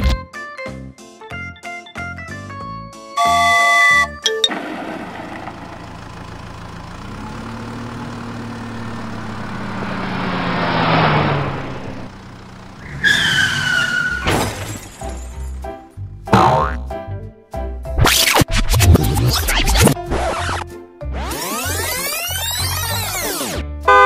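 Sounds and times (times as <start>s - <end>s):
background music: 0.0s - 4.5s, 15.0s - 21.8s
low engine-like hum: 4.6s - 12.9s
crash-like hits and sweeps: 8.7s - 12.1s.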